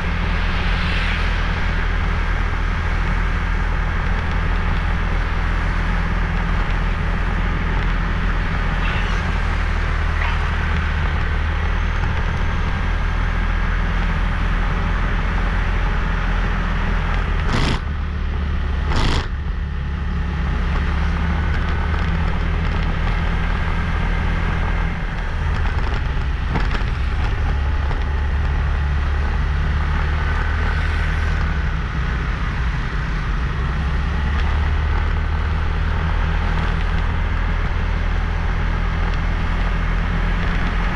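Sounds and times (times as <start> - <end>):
road hiss: 0.0 - 4.0, 8.0 - 11.2
motorbike engine and wind: 0.0 - 40.9.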